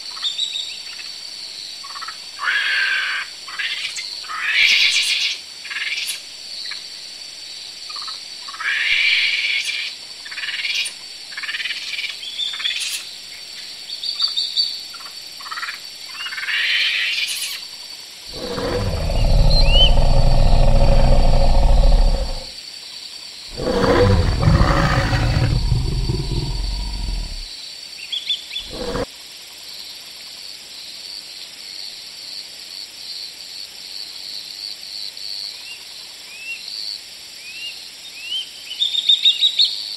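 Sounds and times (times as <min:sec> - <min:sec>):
monkey long low calls: 0:18.3 - 0:22.5, 0:23.5 - 0:27.5, 0:28.6 - 0:29.1.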